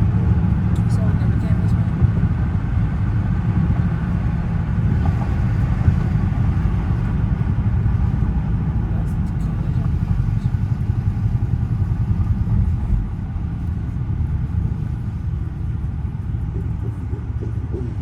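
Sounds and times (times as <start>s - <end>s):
car engine rumbling at low revs: 0.0s - 18.0s.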